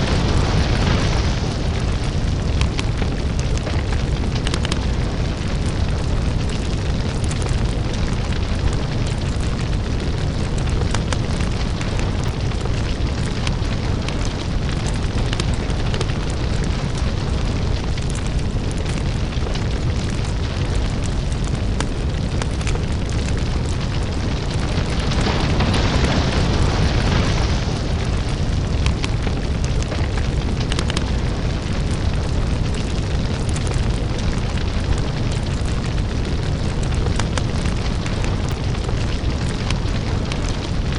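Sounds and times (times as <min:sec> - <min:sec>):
deep rumble: 0:00.0 - 0:40.9
lava crackling and popping: 0:00.0 - 0:40.9.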